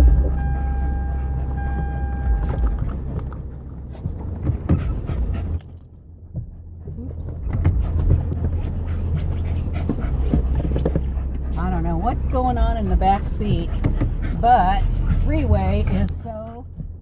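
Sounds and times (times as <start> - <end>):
steady high tone: 0.0 - 2.9
car engine hum: 0.0 - 17.0.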